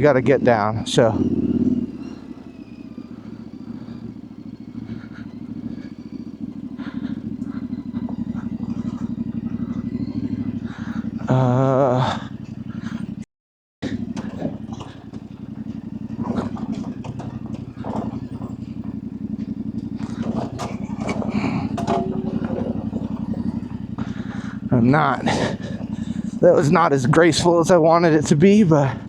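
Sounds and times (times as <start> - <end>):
knocks and clatter over rough ground: 0.0 - 13.2, 13.8 - 29.0
motorcycle engine at low revs: 0.0 - 29.0.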